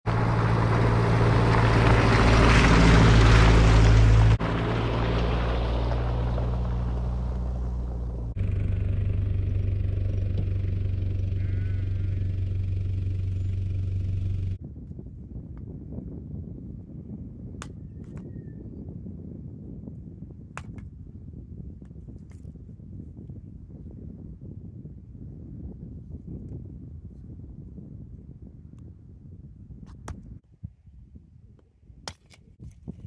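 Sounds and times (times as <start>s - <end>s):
engine droning: 0.1s - 14.6s.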